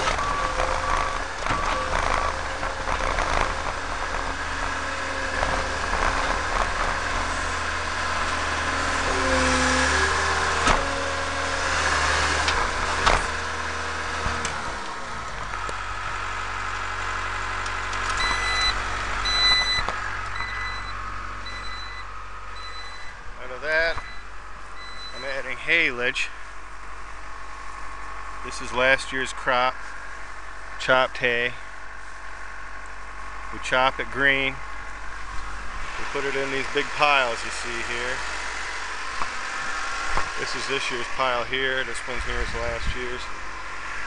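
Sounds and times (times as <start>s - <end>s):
diesel engine running: 0.0s - 44.0s
backup alarm beeping: 18.2s - 23.2s, 23.9s - 25.2s.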